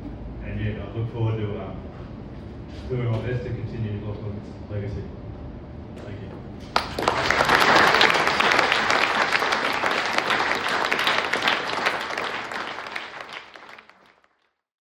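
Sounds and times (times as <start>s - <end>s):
audience applauding: 6.8s - 14.4s.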